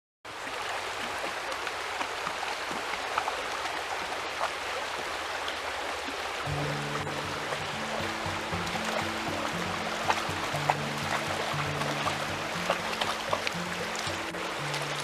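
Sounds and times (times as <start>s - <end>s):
creek water running: 0.3s - 15.0s
water splashing and trickling: 0.3s - 15.0s
background music: 6.5s - 15.0s.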